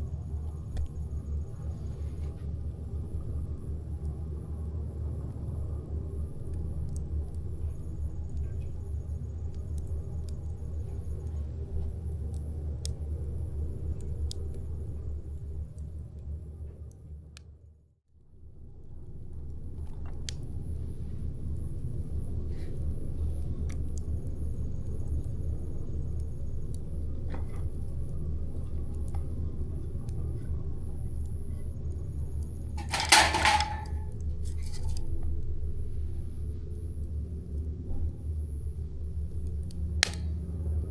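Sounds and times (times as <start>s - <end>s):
campfire burning with crackles: 0.0s - 17.5s, 18.5s - 40.9s
campfire crackling and popping: 39.3s - 40.4s.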